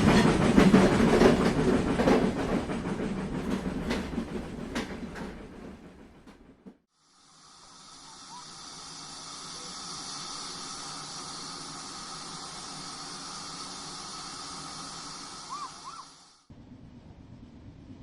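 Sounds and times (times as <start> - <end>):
steady hiss: 7.0 - 16.5
faint bird-like chirps: 15.4 - 16.2.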